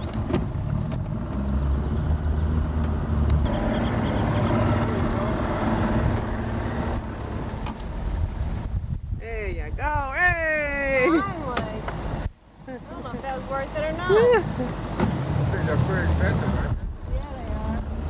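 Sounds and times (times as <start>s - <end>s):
motorboat engine running: 0.0s - 8.6s
wind noise on microphone: 0.0s - 12.4s, 16.2s - 18.0s.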